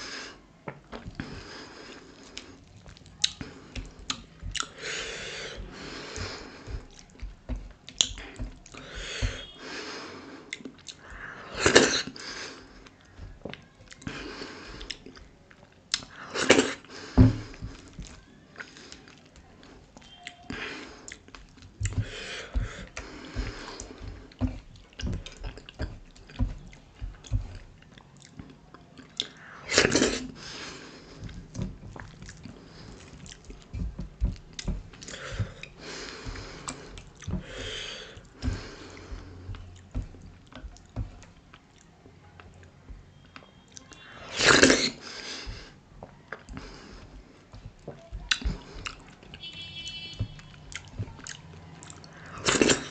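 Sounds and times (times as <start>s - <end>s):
wet chewing and lip-smacking: 1.9s - 4.8s, 10.5s - 11.3s, 17.6s - 29.4s, 31.1s - 38.4s, 46.0s - 49.5s, 50.2s - 52.8s.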